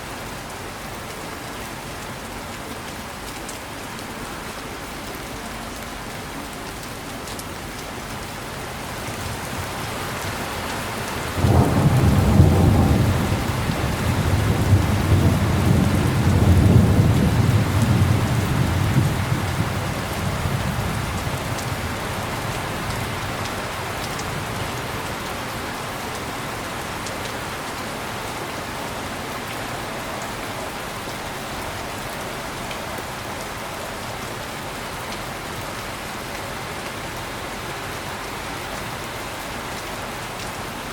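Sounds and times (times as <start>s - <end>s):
heavy rain: 0.0s - 40.9s
thunder rolling: 11.4s - 21.5s.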